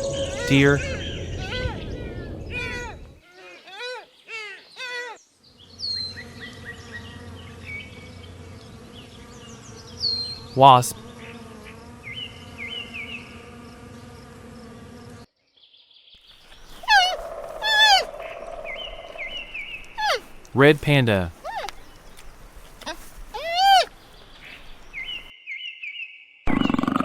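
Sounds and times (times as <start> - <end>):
warbling animal calls: 0.0 - 5.2, 16.6 - 23.9
wasp buzzing: 3.4 - 15.3, 16.4 - 25.3
faint bird chirps: 15.5 - 20.4.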